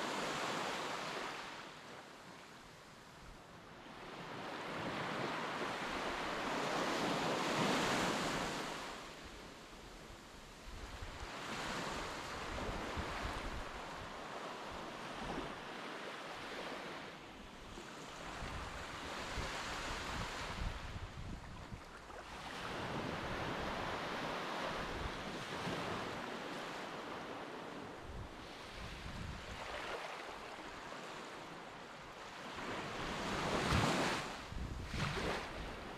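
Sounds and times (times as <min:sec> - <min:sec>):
wind buffeting microphone: 0:18.3 - 0:21.9, 0:33.2 - 0:35.9.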